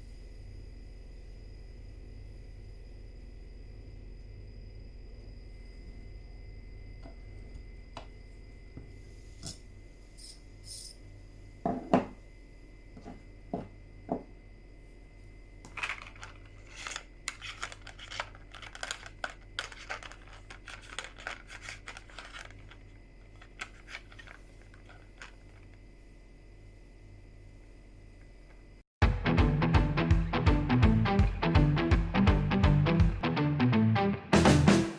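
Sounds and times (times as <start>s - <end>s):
clicking and scraping: 15.7s - 25.8s.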